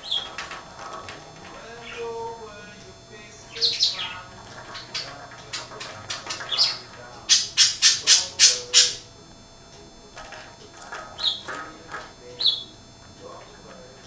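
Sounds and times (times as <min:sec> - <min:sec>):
budgerigars chattering and squawking: 0:00.0 - 0:00.5, 0:01.6 - 0:02.3, 0:03.3 - 0:09.1, 0:11.2 - 0:11.6, 0:12.4 - 0:12.8.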